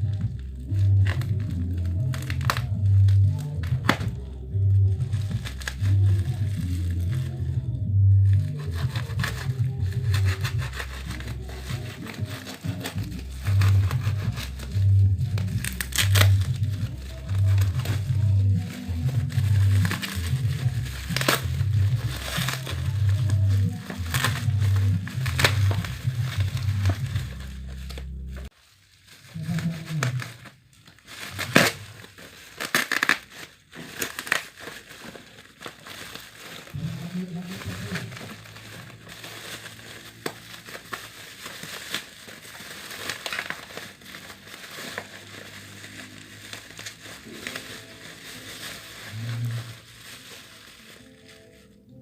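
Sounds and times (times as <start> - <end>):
music with pulsing bass: 0.0 - 28.5
packaging crinkling: 0.0 - 52.0.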